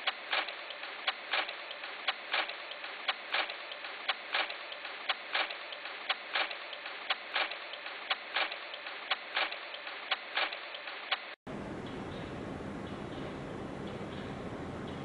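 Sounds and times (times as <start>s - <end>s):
mechanical ticking: 0.0s - 12.1s
faint steady hiss: 11.5s - 15.0s.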